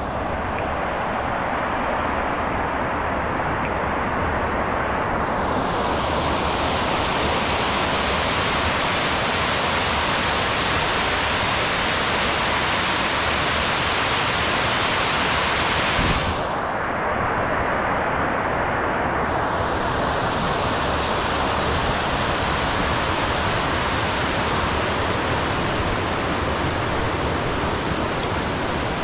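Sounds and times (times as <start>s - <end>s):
heavy rain hissing: 5.0s - 17.3s, 19.0s - 29.0s.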